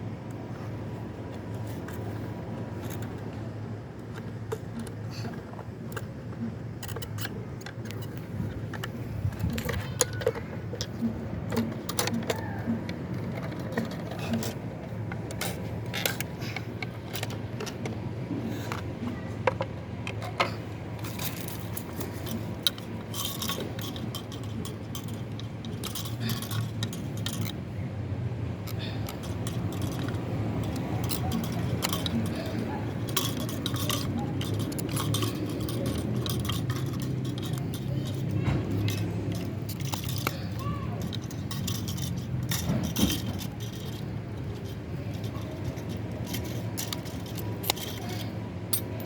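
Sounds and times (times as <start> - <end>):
steady low hum: 0.0 - 49.0
metal tools clinking: 6.8 - 17.9, 20.2 - 27.7, 28.6 - 49.0.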